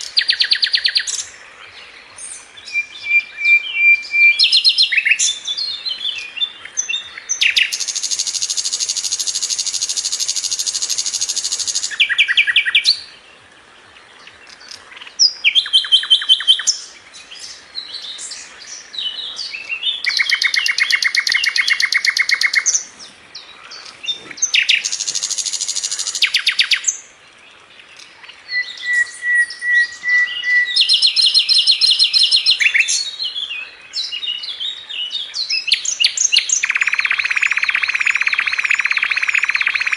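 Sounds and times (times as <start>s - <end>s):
flycatcher singing fast trills: 35.4s - 39.9s.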